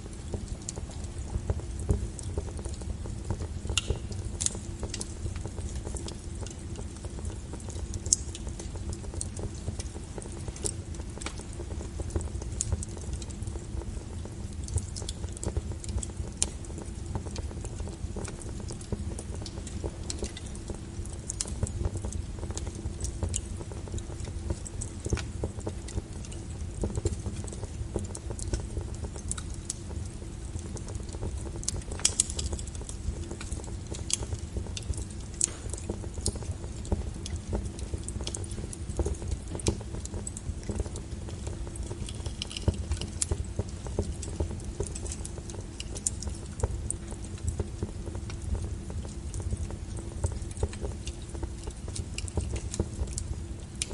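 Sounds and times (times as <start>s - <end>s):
low rumble of flames: 0.0s - 53.9s
wood fire crackling and popping: 0.0s - 53.9s.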